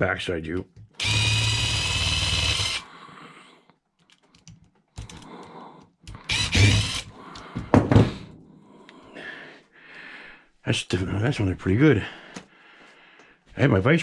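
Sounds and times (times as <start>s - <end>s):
loud thunks: 7.6s - 8.4s.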